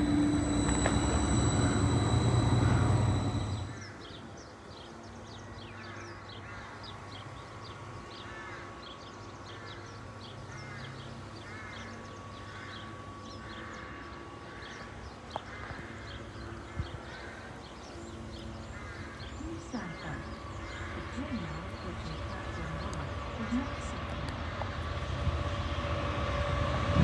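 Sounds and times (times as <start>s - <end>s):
train squealing past: 0.0s - 4.1s, 18.2s - 27.0s.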